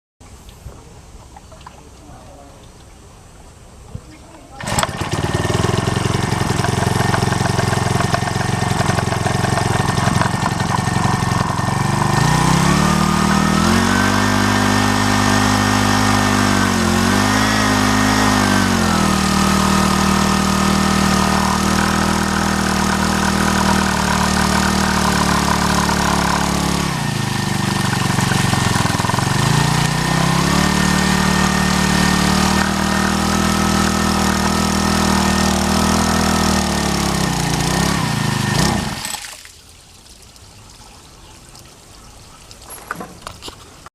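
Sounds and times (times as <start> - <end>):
water pump petrol engine running: 4.6 - 39.3.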